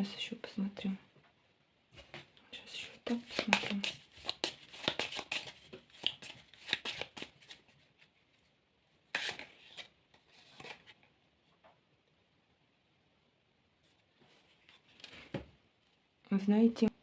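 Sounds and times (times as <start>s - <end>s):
cards being shuffled: 3.0s - 8.1s, 9.1s - 11.0s.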